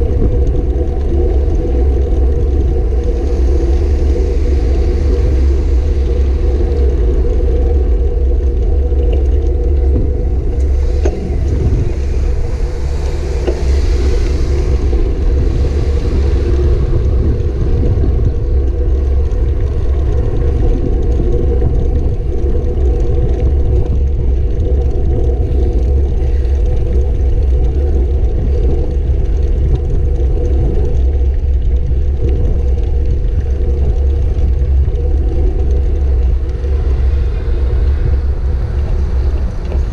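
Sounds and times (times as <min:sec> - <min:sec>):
road noise: 0:00.0 - 0:27.6, 0:34.0 - 0:39.9
wind rumble on microphone: 0:00.0 - 0:39.9
rushing hiss: 0:10.6 - 0:18.2.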